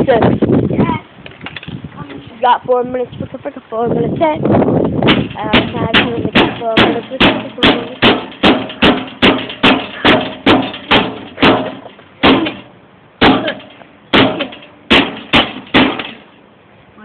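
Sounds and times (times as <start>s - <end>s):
hammer striking microwave oven: 5.1s - 16.3s.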